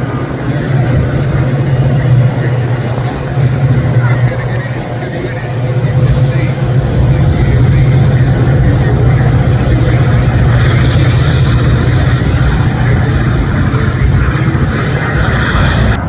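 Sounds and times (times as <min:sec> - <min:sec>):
train engine drone: 0:00.0 - 0:16.0
train wheels on rails: 0:00.0 - 0:16.0.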